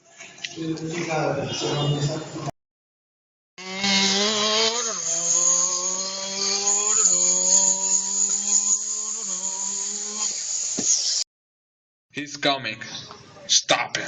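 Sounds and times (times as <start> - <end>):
small motor running: 3.6 - 11.2
high hiss: 4.0 - 11.2.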